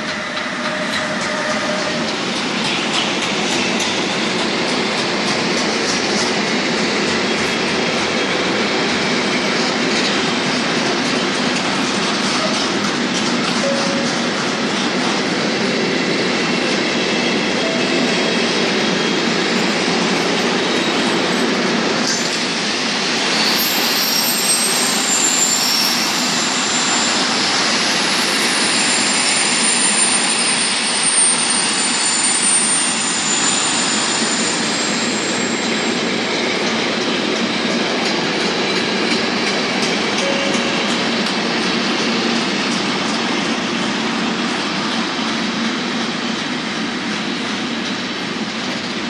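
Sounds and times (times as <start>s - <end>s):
freight train wheels clattering: 0.0s - 22.5s, 23.3s - 49.0s
high wheel squeals: 0.1s - 2.1s, 23.2s - 36.2s.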